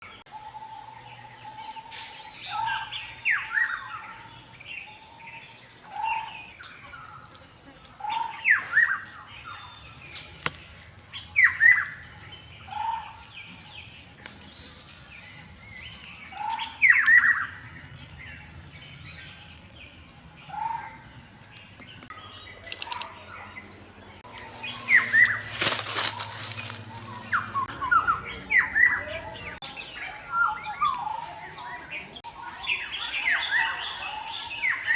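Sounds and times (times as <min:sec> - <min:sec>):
birds chirping: 0:00.0 - 0:34.9
loud noisy rustle: 0:24.3 - 0:27.6.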